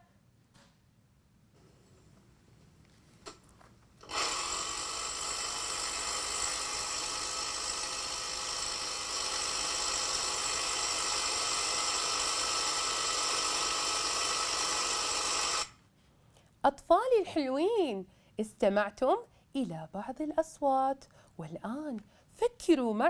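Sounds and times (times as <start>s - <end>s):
drill whirring: 4.0s - 15.8s.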